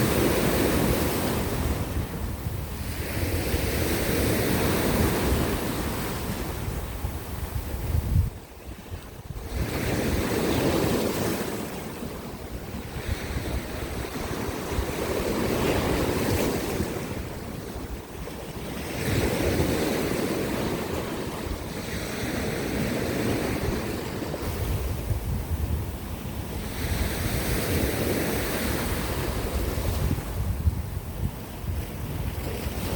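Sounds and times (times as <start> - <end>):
wind rumbling on microphone: 0.0 - 32.9
sea waves breaking on rocks: 8.3 - 25.1.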